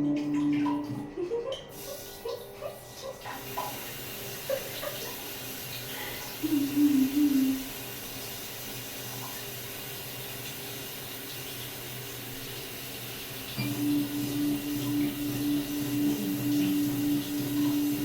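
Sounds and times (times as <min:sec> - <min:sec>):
wavering pitched tone: 0:00.0 - 0:01.0, 0:06.4 - 0:07.6, 0:13.6 - 0:18.0
water running from a tap: 0:00.0 - 0:18.0.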